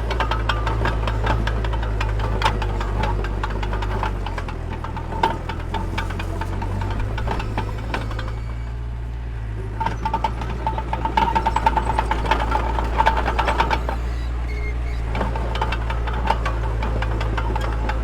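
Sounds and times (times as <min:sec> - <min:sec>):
metallic clanking and rattling: 0:00.0 - 0:08.6, 0:09.7 - 0:18.0
heavy machine engine running: 0:00.0 - 0:18.0.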